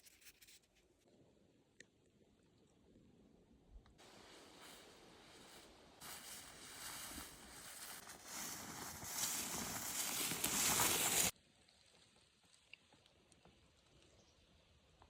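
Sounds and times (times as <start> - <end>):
footsteps through brush: 4.0 - 11.3.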